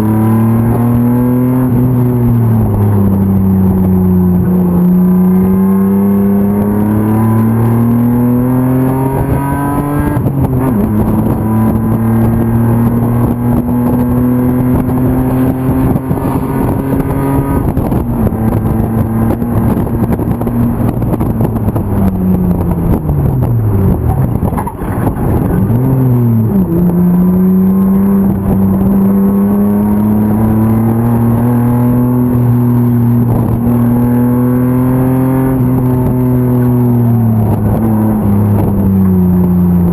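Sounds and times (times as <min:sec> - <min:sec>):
racing engine accelerating: 0:00.0 - 0:39.9
engine throttle blips: 0:08.9 - 0:39.9.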